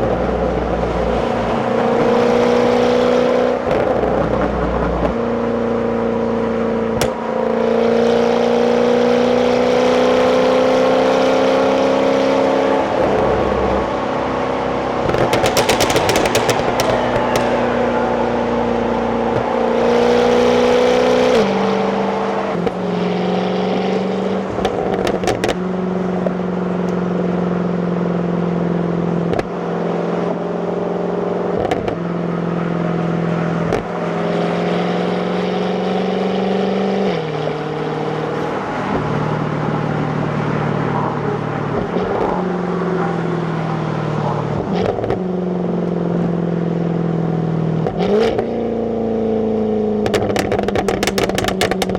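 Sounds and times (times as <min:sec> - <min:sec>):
car engine while driving: 0:00.0 - 0:51.9
exhaust crack at gear change: 0:15.0 - 0:18.2, 0:24.5 - 0:25.6, 0:50.0 - 0:51.9.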